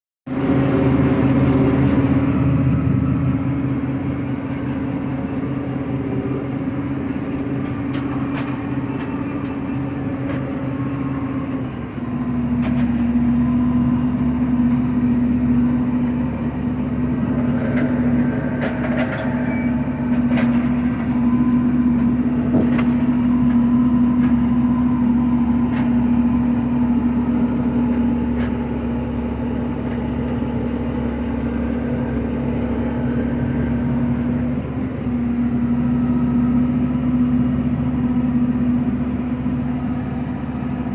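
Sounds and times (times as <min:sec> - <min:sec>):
heavy machinery engine running: 0:00.3 - 0:40.9
light rattles and knocks: 0:17.3 - 0:24.4.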